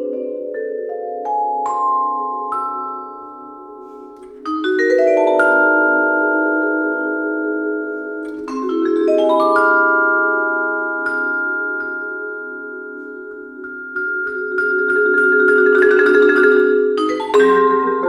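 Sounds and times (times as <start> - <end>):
vibraphone and marimba runs: 13.7 - 18.0.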